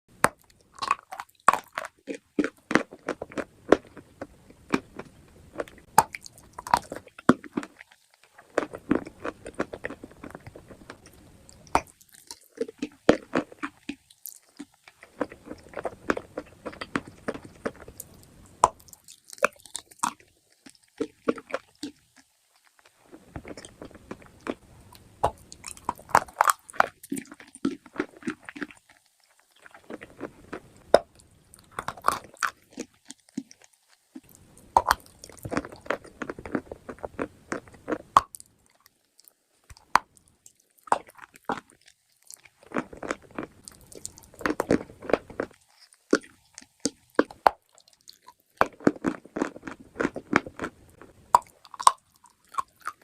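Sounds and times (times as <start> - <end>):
chewing crunchy chalk: 0.3 - 53.0.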